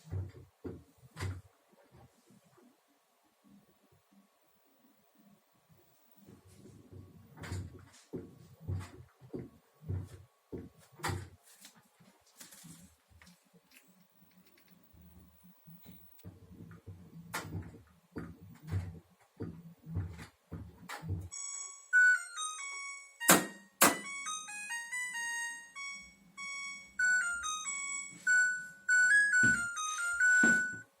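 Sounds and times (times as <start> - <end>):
washing machine spinning rumble: 6.2 - 11.4, 16.2 - 21.3
washing machine beeper melody: 21.3 - 31.0.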